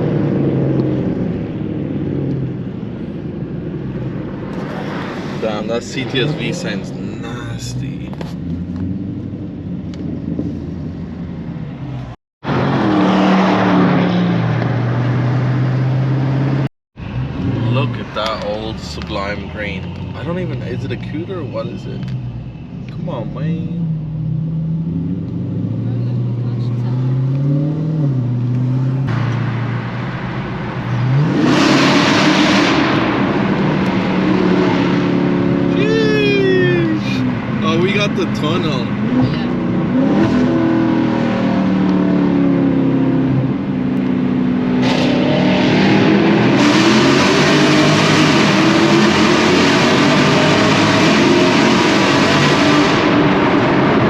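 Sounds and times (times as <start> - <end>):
car engine accelerating hard: 0.0 - 11.0, 22.9 - 54.0.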